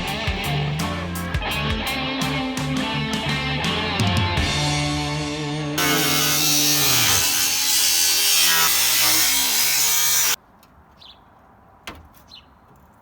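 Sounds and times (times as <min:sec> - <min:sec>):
rock music: 0:00.0 - 0:07.8
power tool grinding steel: 0:05.8 - 0:10.4
faint birdsong: 0:10.8 - 0:11.5, 0:12.2 - 0:12.9.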